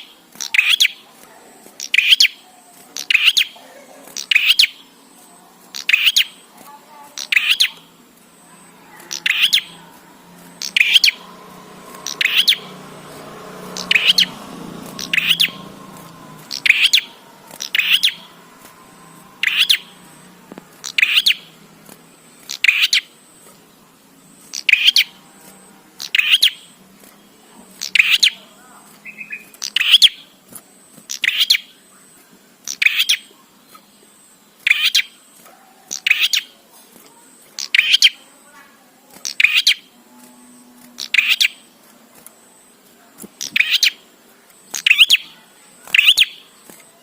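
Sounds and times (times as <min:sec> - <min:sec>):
songbird chattering calls: 0:00.0 - 0:01.0, 0:01.8 - 0:02.4, 0:03.0 - 0:04.9, 0:05.7 - 0:09.8, 0:10.4 - 0:18.4, 0:19.4 - 0:21.6, 0:22.2 - 0:23.4, 0:24.4 - 0:25.2, 0:26.0 - 0:30.4, 0:31.1 - 0:36.6, 0:37.5 - 0:38.2, 0:39.2 - 0:39.9, 0:41.0 - 0:41.7, 0:43.4 - 0:44.0, 0:44.6 - 0:46.7.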